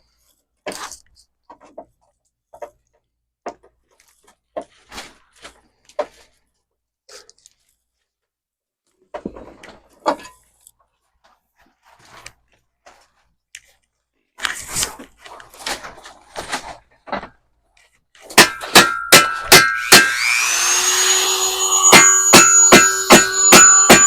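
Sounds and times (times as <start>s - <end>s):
ringing metal strikes: 18.4s - 24.0s
power tool whining: 19.7s - 24.0s.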